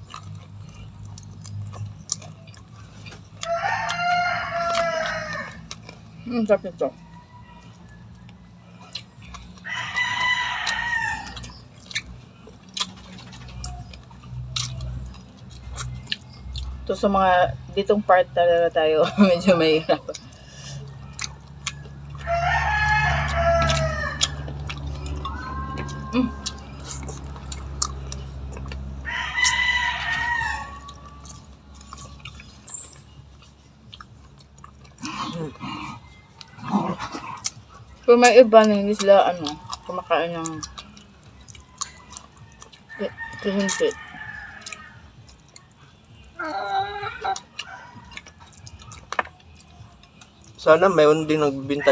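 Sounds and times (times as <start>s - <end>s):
rooster crowing: 3.4s - 5.8s, 6.9s - 9.0s, 9.6s - 11.6s, 20.6s - 26.8s, 28.9s - 32.1s, 40.8s - 45.2s, 46.4s - 49.0s.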